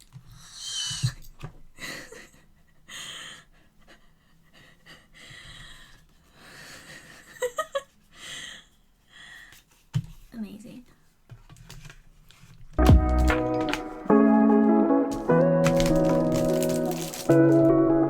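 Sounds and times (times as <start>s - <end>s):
soft breaths: 0.2s - 10.3s
packaging rustling and clicking: 12.8s - 14.2s, 15.1s - 17.9s.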